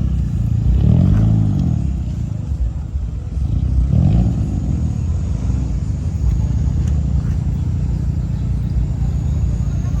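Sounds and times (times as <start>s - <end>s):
car engines rumbling: 0.0s - 10.0s.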